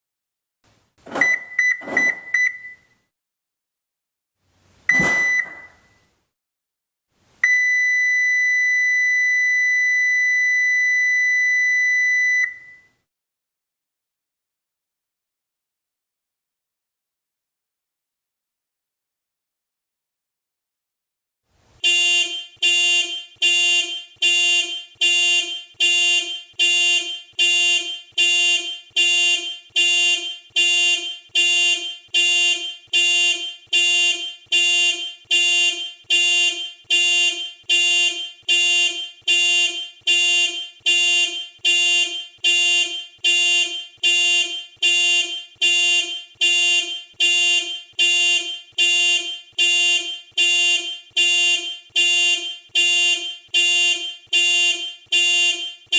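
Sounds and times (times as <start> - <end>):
car horn honking: 1.1 - 2.8, 4.9 - 5.9, 21.8 - 55.9.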